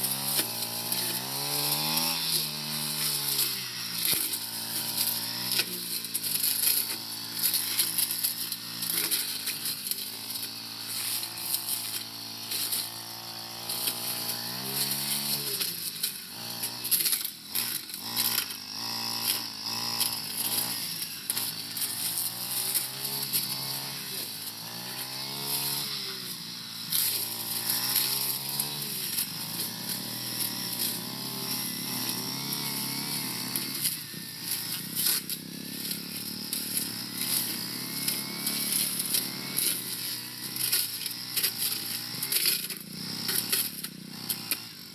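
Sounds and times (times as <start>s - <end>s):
brush cutter engine revving: 0.0s - 44.9s.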